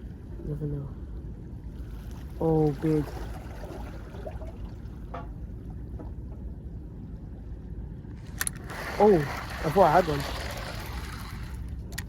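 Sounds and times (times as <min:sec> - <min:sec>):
sea water at shoreline: 0:00.0 - 0:12.0
wind: 0:00.0 - 0:12.0.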